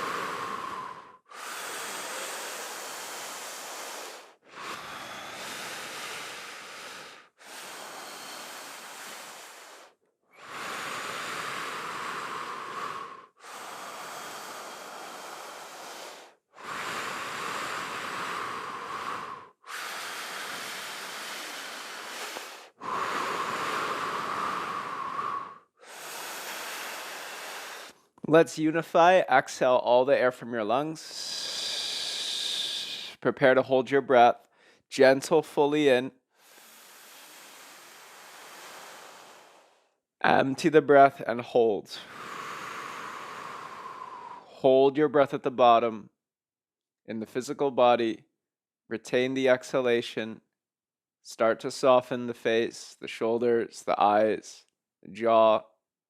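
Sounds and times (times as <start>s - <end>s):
person breathing deeply: 0.0s - 28.1s, 31.1s - 33.2s, 36.4s - 40.0s, 41.8s - 44.6s.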